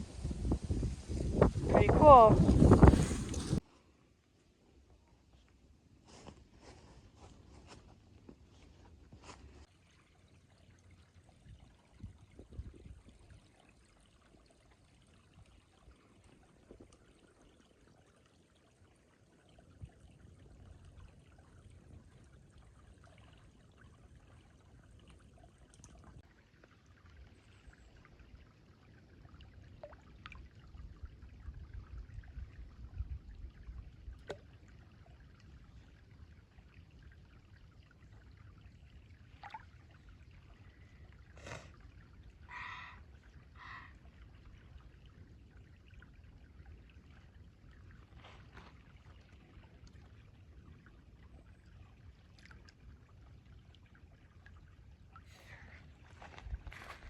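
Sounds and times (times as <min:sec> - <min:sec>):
low microphone rumble: 0:00.0 - 0:03.6
creek trickling over rocks: 0:00.0 - 0:57.0.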